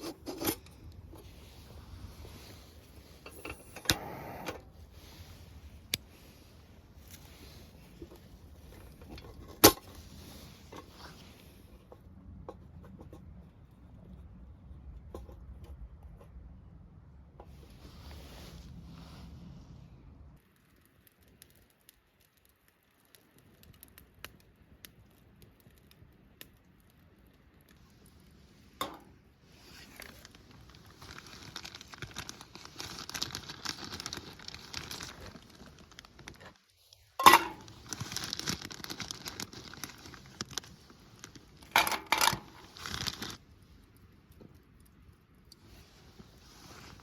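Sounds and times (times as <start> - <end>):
crinkling and rustling: 0.0 - 14.3, 25.0 - 47.0.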